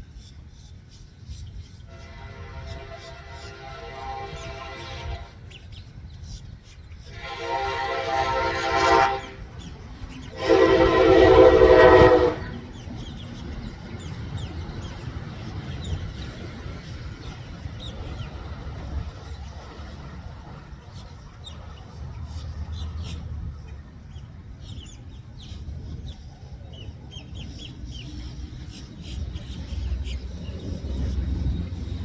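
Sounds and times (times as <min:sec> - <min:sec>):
train horn blasts: 0:01.9 - 0:05.5, 0:07.0 - 0:12.7
low rumble: 0:30.2 - 0:32.0.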